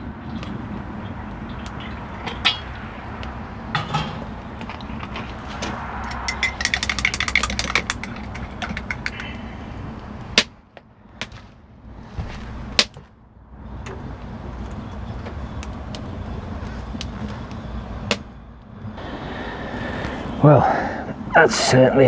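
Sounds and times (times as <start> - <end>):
crockery and cutlery clinking: 0.3 - 10.4
sharp knocks: 1.6 - 9.5
spoon clinking against mug: 6.0 - 9.4.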